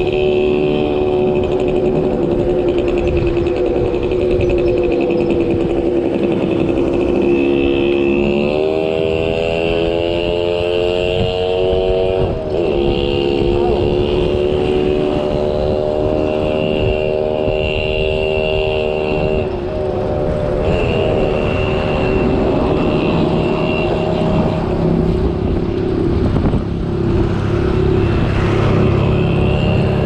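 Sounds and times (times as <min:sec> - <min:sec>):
vehicle engine running: 0:00.0 - 0:30.0
wind on microphone: 0:00.0 - 0:30.0.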